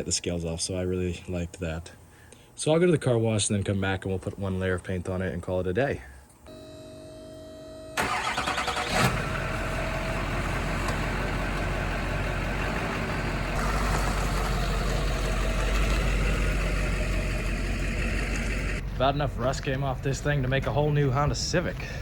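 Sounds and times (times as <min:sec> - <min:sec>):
diesel engine starting and idling: 0:08.0 - 0:22.0.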